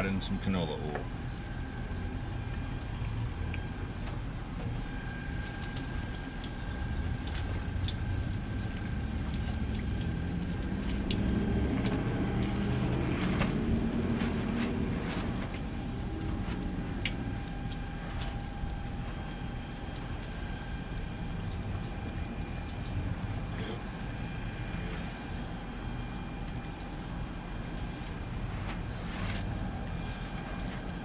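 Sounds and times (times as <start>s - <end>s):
oil pops and crackles: 0.8s - 2.1s, 2.8s - 24.6s
deep-frying sizzle: 0.8s - 31.0s
low rumble: 6.4s - 19.2s.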